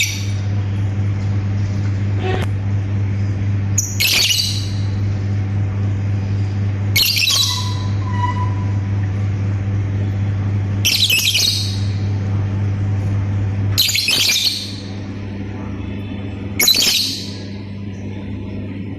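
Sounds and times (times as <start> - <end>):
steady low hum: 0.0 - 18.9
lovebird chirping calls: 3.8 - 4.9, 7.0 - 8.7, 10.9 - 12.0, 13.8 - 14.8, 16.6 - 17.4.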